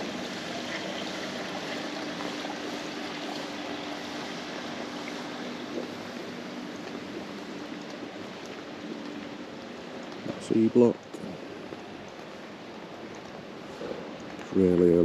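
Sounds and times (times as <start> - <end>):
running water hiss: 0.0 - 9.0.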